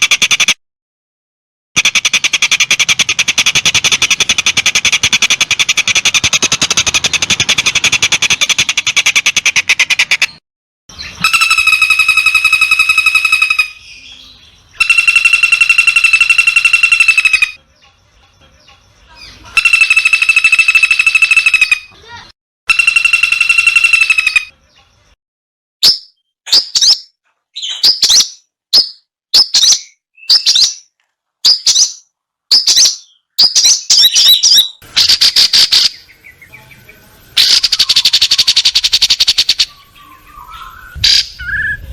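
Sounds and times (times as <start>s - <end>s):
bird fast-pulsing ringing call: 1.8s - 9.3s, 11.0s - 14.0s, 14.7s - 17.8s, 19.4s - 24.6s, 32.6s - 41.7s
bird buzzing trill: 14.8s - 17.6s, 19.6s - 21.8s, 22.7s - 24.5s.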